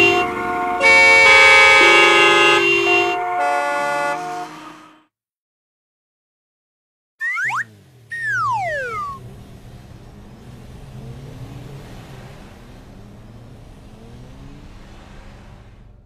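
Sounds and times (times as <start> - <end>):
car engines revving: 0.0 - 4.8, 7.2 - 16.0
falling cartoon tone: 7.2 - 9.2.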